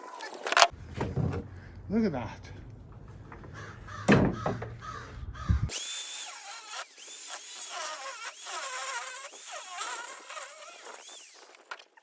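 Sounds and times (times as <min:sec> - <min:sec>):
angle grinder cutting metal: 0:05.7 - 0:11.8.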